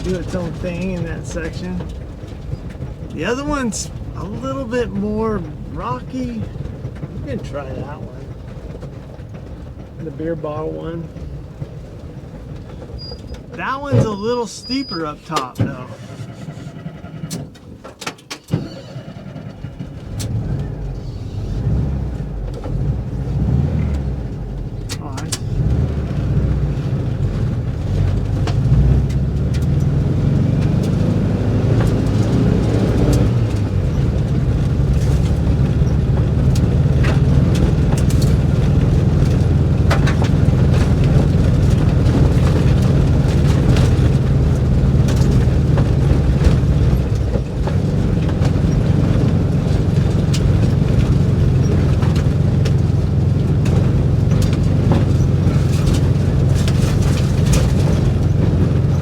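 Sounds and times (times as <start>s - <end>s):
van engine running under load: 0.0s - 59.0s
sharp clicks and knocks: 23.8s - 59.0s.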